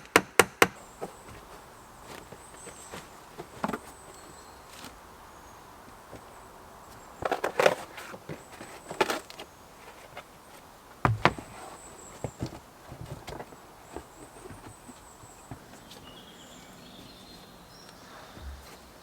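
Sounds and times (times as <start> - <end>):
knocks and taps: 11.1 - 11.4.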